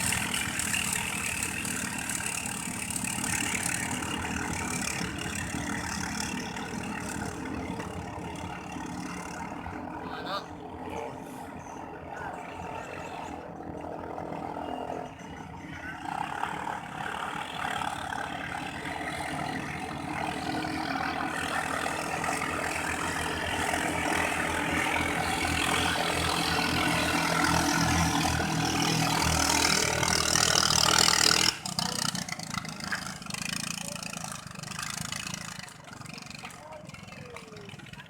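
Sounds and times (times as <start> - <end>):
longtail boat engine running: 0.0 - 38.0.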